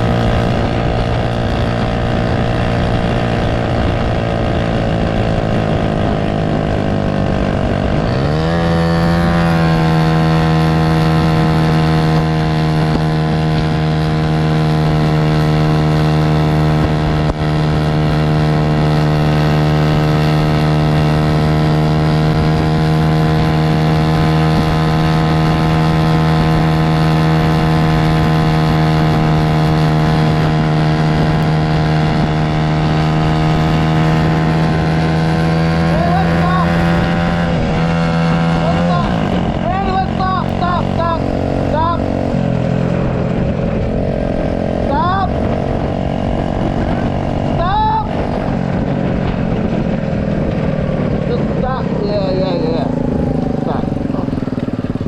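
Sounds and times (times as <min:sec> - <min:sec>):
mini bike engine under load: 0:00.0 - 0:55.0.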